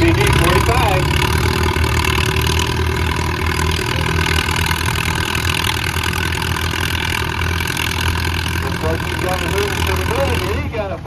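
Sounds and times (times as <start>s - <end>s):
tractor engine running under load: 0.0s - 11.0s.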